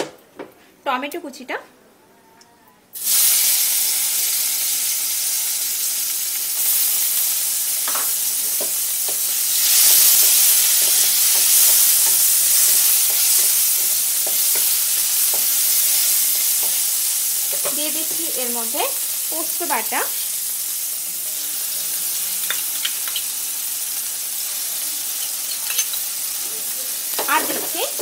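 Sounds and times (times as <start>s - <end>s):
tomato sizzling in hot oil: 3.0s - 28.0s.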